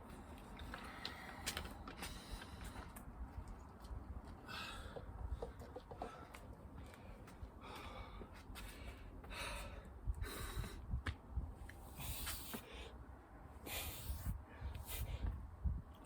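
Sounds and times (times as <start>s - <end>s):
person breathing hard: 4.4s - 10.9s.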